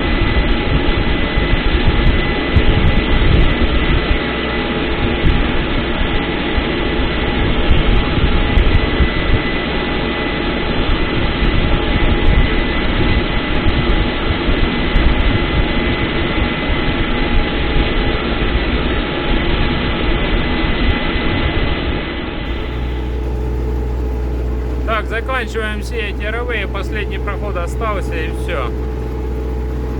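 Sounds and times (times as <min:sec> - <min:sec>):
thin high whine: 0:22.5 - 0:29.9
tractor diesel engine running: 0:22.5 - 0:29.9.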